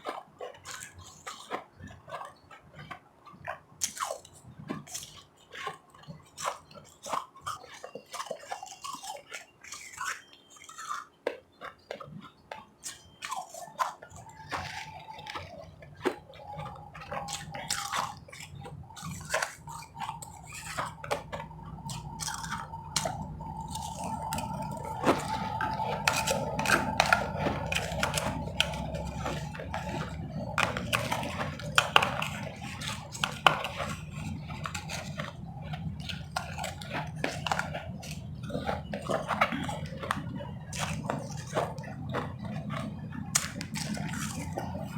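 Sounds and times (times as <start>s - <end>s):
ice crunching while eating: 0.0s - 44.9s
faint steady whine: 11.7s - 44.9s.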